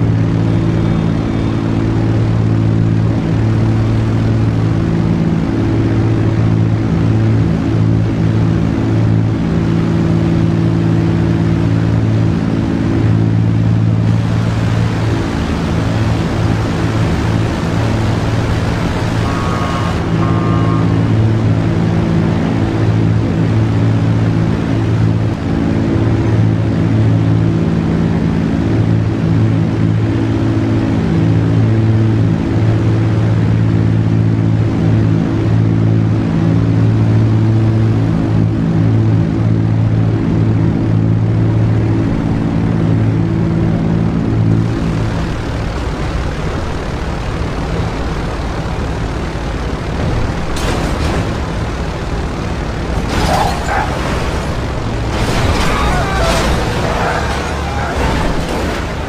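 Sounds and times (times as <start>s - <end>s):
engine drone: 0.0s - 59.0s
loud rushing noise: 49.8s - 59.0s.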